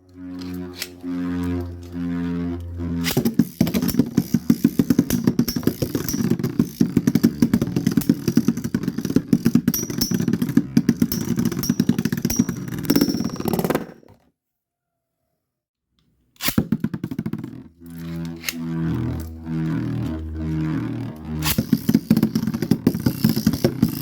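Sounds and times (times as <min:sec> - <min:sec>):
faint high whine: 0:00.0 - 0:10.2
spinning tops clattering: 0:03.0 - 0:13.5, 0:21.4 - 0:24.0.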